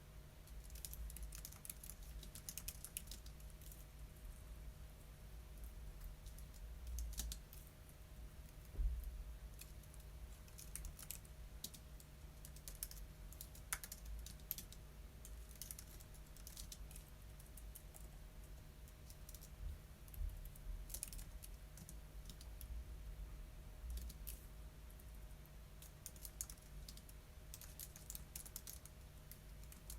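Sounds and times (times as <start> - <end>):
low steady hum: 0.0 - 29.9
typing on computer keyboard: 0.5 - 3.8, 6.2 - 7.7, 9.6 - 18.1, 18.9 - 22.7, 25.8 - 29.9.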